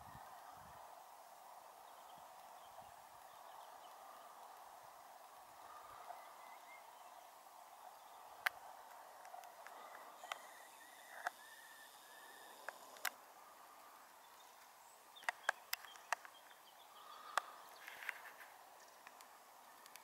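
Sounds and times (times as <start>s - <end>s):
birds chirping faintly: 0.0s - 20.0s
sharp clicks: 12.6s - 13.2s, 15.2s - 16.4s.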